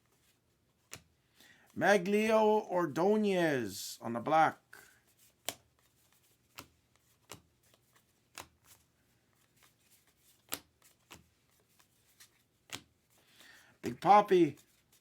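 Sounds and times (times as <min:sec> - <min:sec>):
cards snapping: 0:00.8 - 0:01.1, 0:05.2 - 0:08.8, 0:09.4 - 0:13.4.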